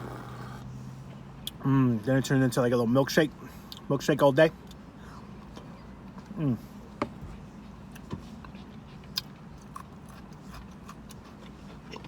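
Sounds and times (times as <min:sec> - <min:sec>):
low steady hum: 0:00.0 - 0:12.0
person chewing: 0:07.9 - 0:12.0.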